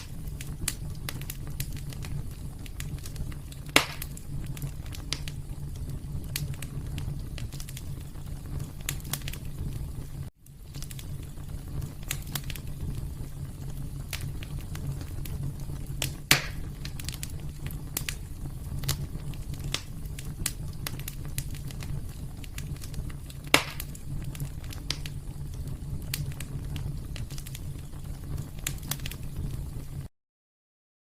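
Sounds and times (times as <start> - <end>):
wood fire crackling: 0.0 - 30.1
sharp pops: 3.7 - 4.2, 16.0 - 17.3, 23.5 - 24.0.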